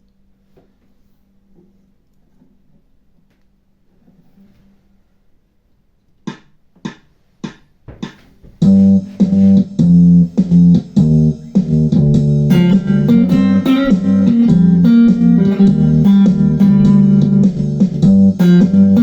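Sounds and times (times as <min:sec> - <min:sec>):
plucked guitar riff: 0:08.6 - 0:19.0.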